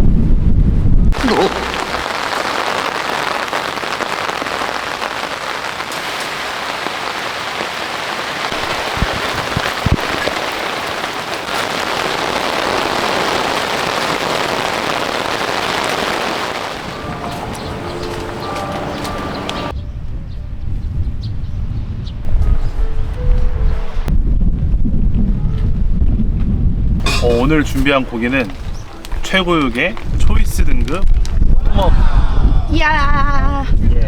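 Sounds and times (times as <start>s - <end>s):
heavy rain hissing: 1.1s - 19.7s.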